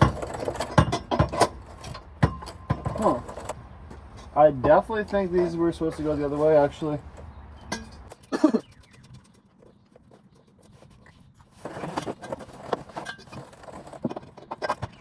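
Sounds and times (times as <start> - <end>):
metal parts knocking and clinking: 0.0 - 3.6.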